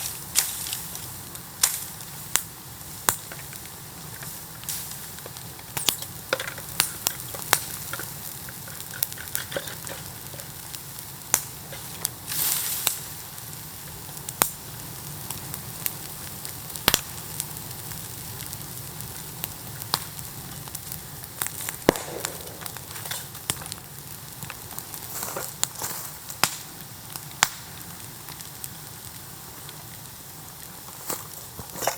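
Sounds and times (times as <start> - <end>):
bonfire crackling and popping: 0.0 - 31.9
short hiss: 12.3 - 13.1.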